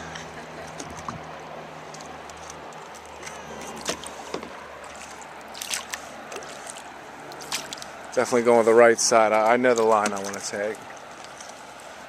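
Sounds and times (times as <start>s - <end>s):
paddle splashes: 0.0s - 12.0s.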